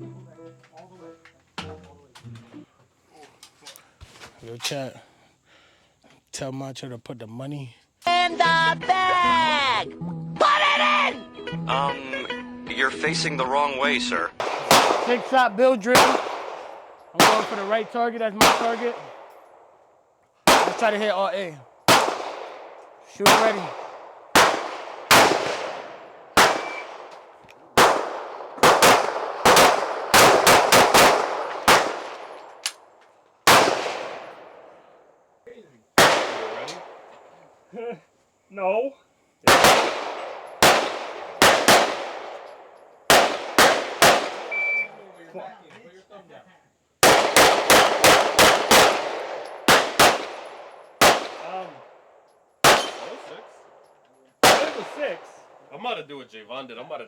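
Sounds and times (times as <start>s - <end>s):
handgun shots echoing: 14.4s - 19.6s, 20.5s - 32.9s, 33.5s - 34.7s, 39.5s - 44.9s, 47.0s - 51.7s, 52.6s - 53.8s, 54.4s - 55.4s.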